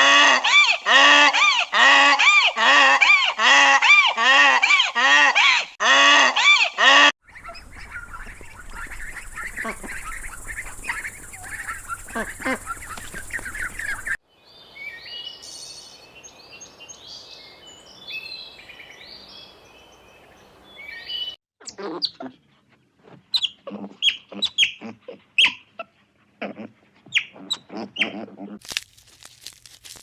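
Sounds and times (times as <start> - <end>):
high varied birdsong: 7.2 - 21.4
flock of birds chattering: 7.3 - 14.2.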